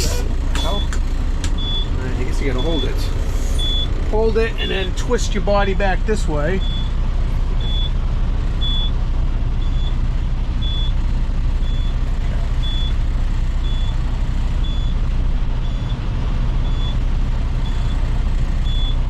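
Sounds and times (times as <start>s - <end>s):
high warning beeps: 0.0s - 1.0s, 1.6s - 3.9s, 6.6s - 6.9s, 7.6s - 7.9s, 12.6s - 13.0s
truck diesel engine running: 0.0s - 19.0s.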